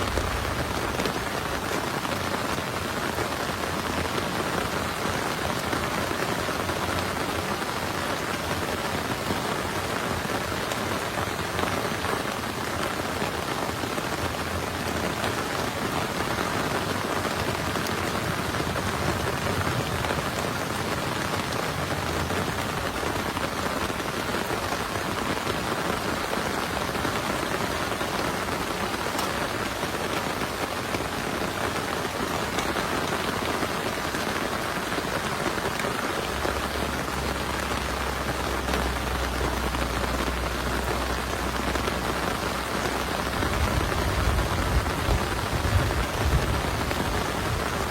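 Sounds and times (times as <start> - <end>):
heavy rain falling: 0.0 - 47.9.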